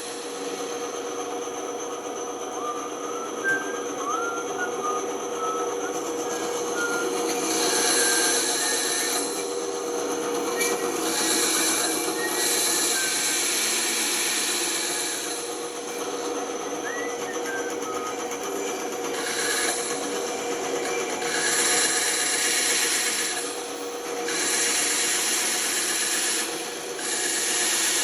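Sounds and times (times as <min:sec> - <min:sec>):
band saw cutting wood: 0:00.0 - 0:28.0.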